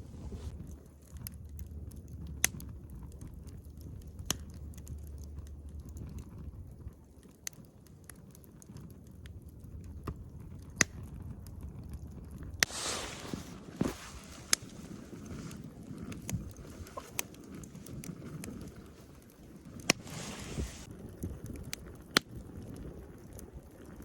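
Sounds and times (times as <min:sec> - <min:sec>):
low steady rumble: 0:00.0 - 0:06.9
campfire crackling and popping: 0:00.0 - 0:24.0.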